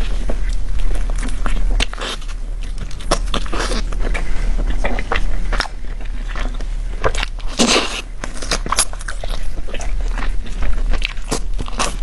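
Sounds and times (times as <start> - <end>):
biting and chewing food: 0.0 - 12.0.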